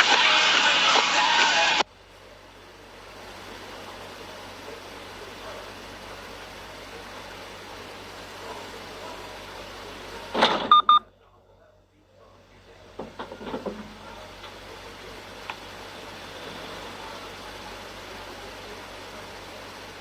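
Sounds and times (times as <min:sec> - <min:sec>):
vehicle road noise: 0:00.0 - 0:11.0, 0:12.2 - 0:20.0
quick high beeps: 0:10.7 - 0:11.1.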